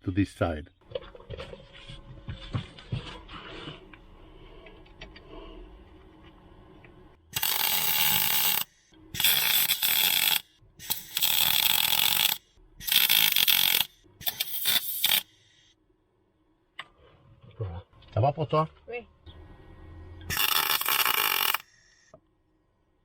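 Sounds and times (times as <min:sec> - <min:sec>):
welding arc bursts: 0:07.4 - 0:15.3, 0:20.3 - 0:22.1.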